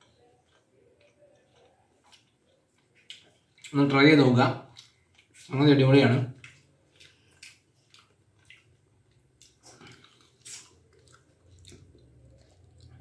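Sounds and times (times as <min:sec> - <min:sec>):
person chewing food: 0:00.0 - 0:03.8, 0:04.6 - 0:05.5, 0:06.4 - 0:13.0
soft mouth clicks and smacks: 0:06.4 - 0:13.0.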